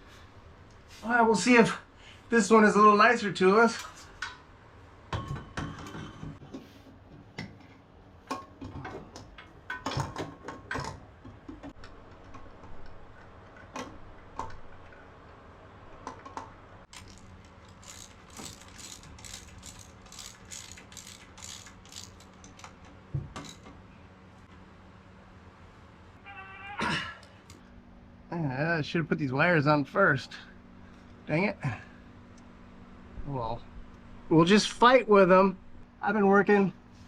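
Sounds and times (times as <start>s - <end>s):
ratchet wrench clicking: 16.9s - 22.8s, 23.4s - 23.6s.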